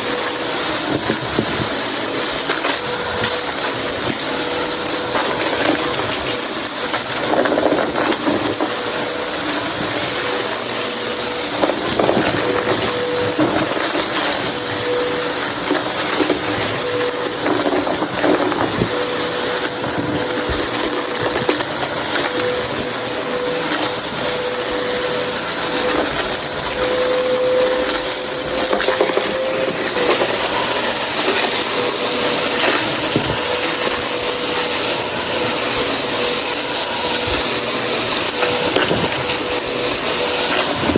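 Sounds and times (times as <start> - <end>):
debris crackling in vacuum: 0.0 - 40.9
vacuum cleaner running: 0.0 - 40.9.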